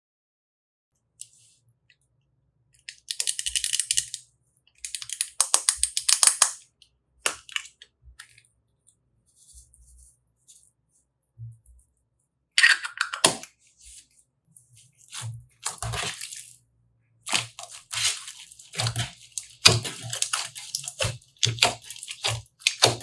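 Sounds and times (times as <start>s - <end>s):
slime crackling and popping: 17.3s - 23.0s.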